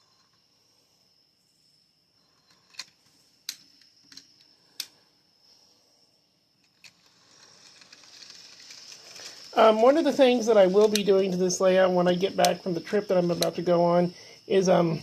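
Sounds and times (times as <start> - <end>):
faint high whine: 0.0 - 15.0
model wagons clicking: 6.7 - 11.7.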